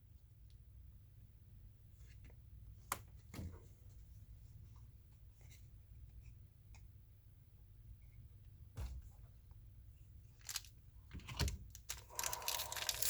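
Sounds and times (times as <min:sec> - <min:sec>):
low room hum: 0:00.0 - 0:13.0
paper rustling of card packs: 0:10.4 - 0:10.7, 0:11.7 - 0:13.0.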